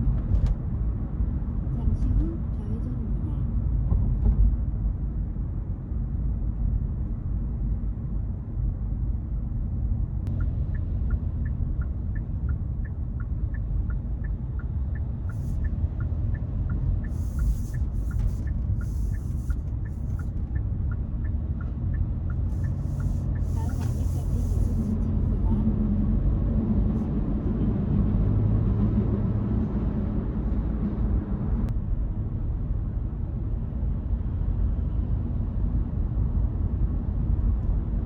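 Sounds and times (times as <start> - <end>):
car road and engine rumble: 0.0 - 38.0
turn signal ticking: 10.2 - 25.0
short hissing bursts: 17.1 - 19.5, 22.5 - 24.9.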